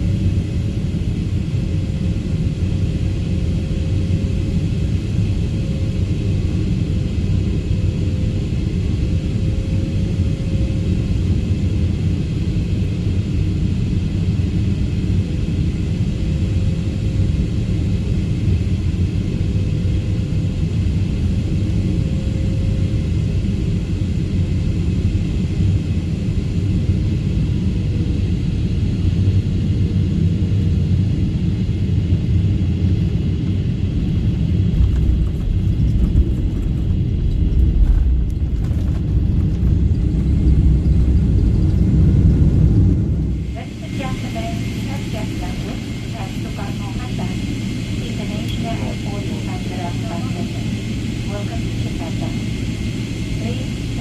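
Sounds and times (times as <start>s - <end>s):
jet engine cabin rumble: 0.0s - 54.0s
faint hum: 33.8s - 54.0s.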